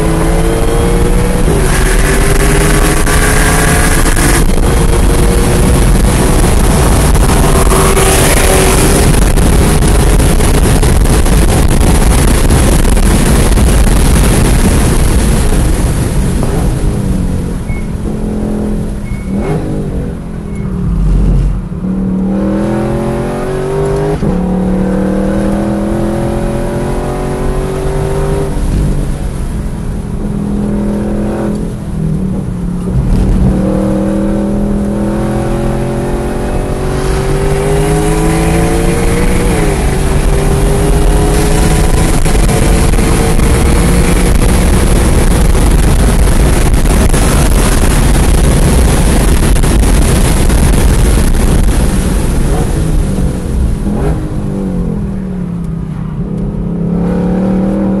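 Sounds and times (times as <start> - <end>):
road and wind noise: 0.0 - 58.0
sports car engine at full throttle: 0.0 - 58.0.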